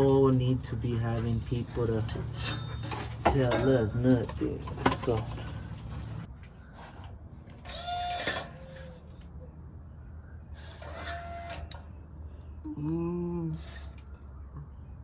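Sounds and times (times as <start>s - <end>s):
person humming or grunting: 12.6s - 13.6s.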